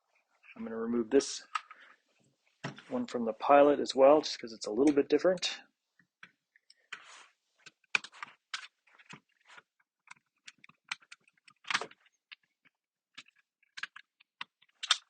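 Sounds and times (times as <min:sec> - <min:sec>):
plastic parts clicking: 0:07.6 - 0:15.0.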